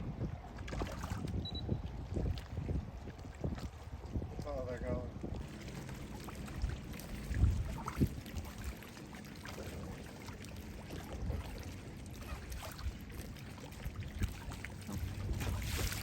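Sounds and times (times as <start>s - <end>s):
water lapping around boat: 0.0s - 16.0s
soft knocks against hull: 14.2s - 16.0s.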